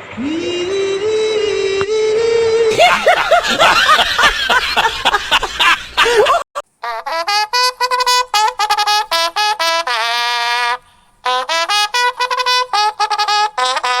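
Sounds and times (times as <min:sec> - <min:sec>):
trumpet playing: 0:06.8 - 0:14.0.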